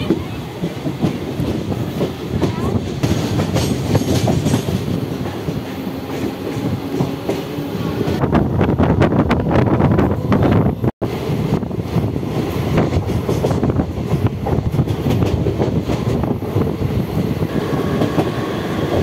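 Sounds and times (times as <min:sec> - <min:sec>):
wheels clacking over track joints: 0:00.0 - 0:07.6, 0:12.4 - 0:16.7
train wheels rumbling on rails: 0:00.0 - 0:19.0.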